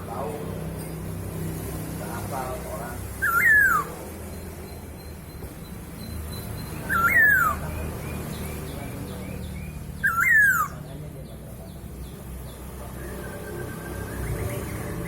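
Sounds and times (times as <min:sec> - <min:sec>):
bird loud swooping calls: 0:03.2 - 0:04.0, 0:06.8 - 0:07.7, 0:10.0 - 0:10.8.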